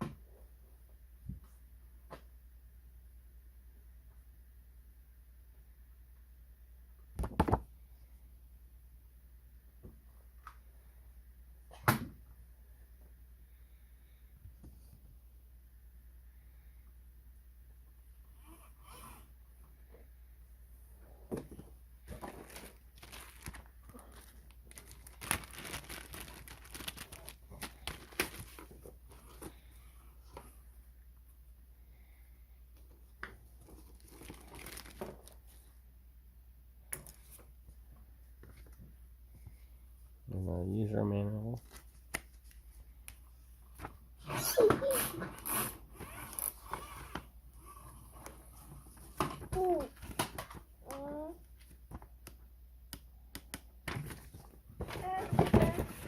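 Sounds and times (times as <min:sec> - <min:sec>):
packaging crinkling and rustling: 0:22.0 - 0:29.7, 0:33.6 - 0:35.6, 0:53.9 - 0:56.0.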